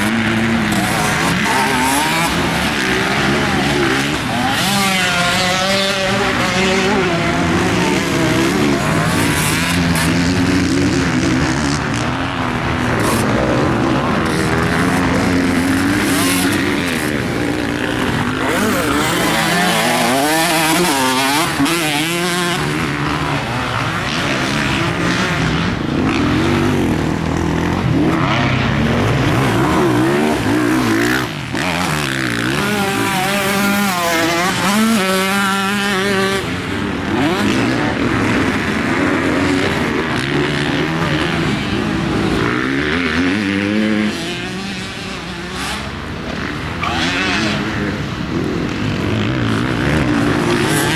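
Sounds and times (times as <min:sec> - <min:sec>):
motocross bike engine revving: 0:00.0 - 0:50.9.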